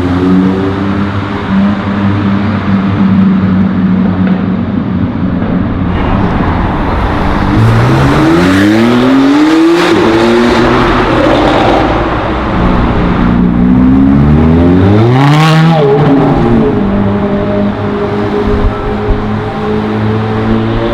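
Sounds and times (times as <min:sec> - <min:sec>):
car engine accelerating hard: 0:05.8 - 0:20.9.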